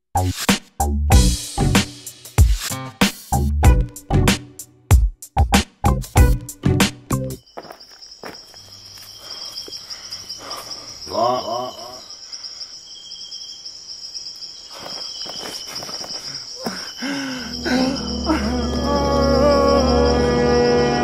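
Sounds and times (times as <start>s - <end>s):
insects chirring: 7.4s - 21.0s.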